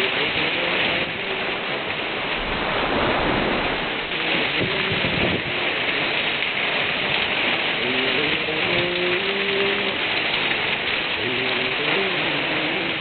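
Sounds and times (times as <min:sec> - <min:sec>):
heavy rain pouring: 0:00.0 - 0:13.0
low rumble: 0:01.8 - 0:05.5.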